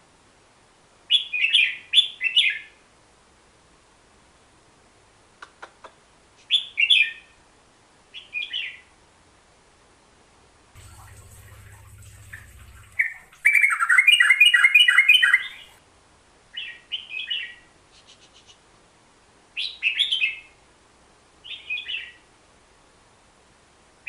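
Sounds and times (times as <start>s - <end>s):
faint low hum: 10.7s - 16.2s
bulbul singing: 10.8s - 15.8s.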